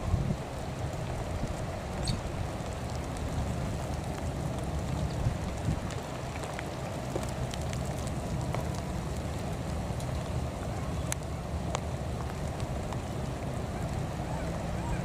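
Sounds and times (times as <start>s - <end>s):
steady rain: 0.0s - 15.0s
wind rumble on microphone: 0.0s - 15.0s
light irregular ticks: 0.6s - 14.2s.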